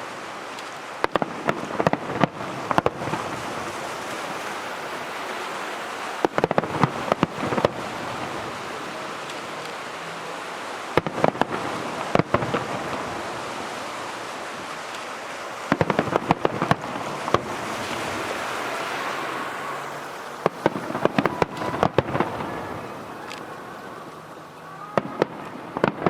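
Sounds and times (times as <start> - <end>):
firework crackling hiss: 0.0 - 26.0
firework shells bursting: 0.4 - 24.0.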